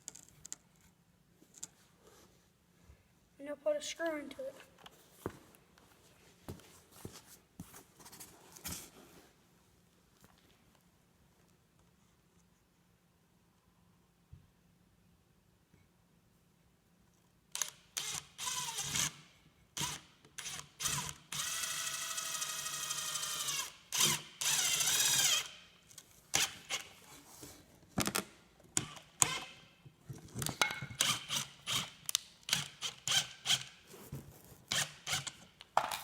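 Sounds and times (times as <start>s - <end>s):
power drill driving screw: 17.6s - 19.2s, 19.8s - 25.6s, 26.4s - 26.9s, 28.8s - 29.6s, 31.0s - 33.8s, 34.7s - 35.5s.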